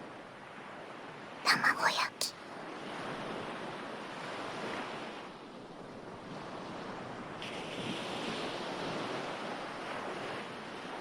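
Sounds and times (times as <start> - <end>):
ocean waves washing in and out: 2.5 - 11.0.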